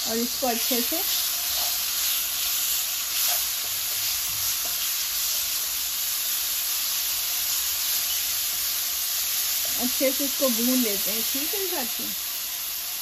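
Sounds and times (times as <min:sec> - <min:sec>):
food sizzling in oil: 0:00.0 - 0:13.0
spatula stirring and scraping: 0:00.6 - 0:05.9.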